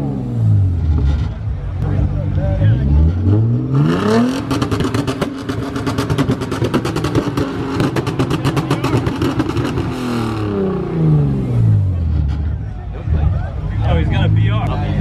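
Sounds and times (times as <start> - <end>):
car engine revving on rev limiter: 2.7 - 12.5.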